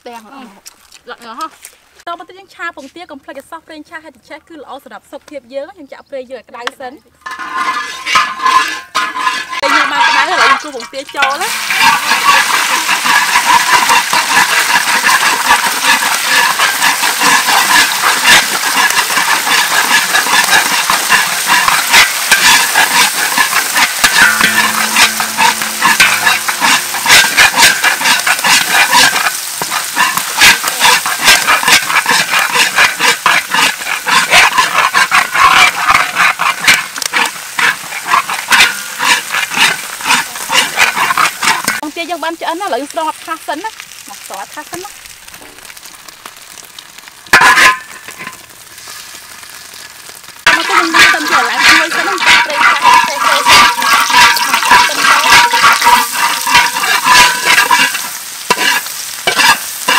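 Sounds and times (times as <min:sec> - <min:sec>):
eggs sizzling in oil: 0:06.6 - 0:59.9
metal spatula scraping a wok: 0:07.2 - 0:41.9, 0:47.3 - 0:59.9
eggshells cracking: 0:09.6 - 0:41.6, 0:43.6 - 0:59.9.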